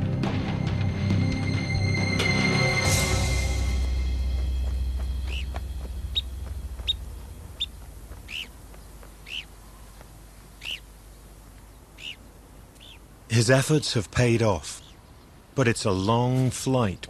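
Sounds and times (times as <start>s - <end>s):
low music drone: 0.0s - 8.7s
short high bird calls: 5.2s - 11.0s, 11.8s - 13.1s.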